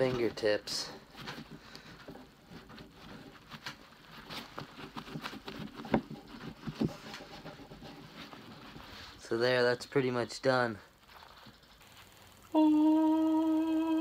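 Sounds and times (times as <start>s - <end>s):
scratchy rubbing of wax on cloth: 2.4s - 9.3s.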